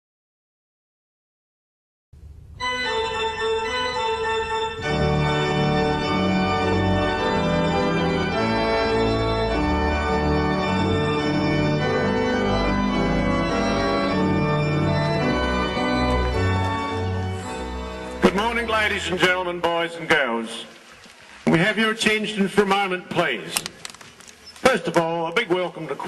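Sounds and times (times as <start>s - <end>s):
organ playing sustained chords: 2.3s - 20.7s.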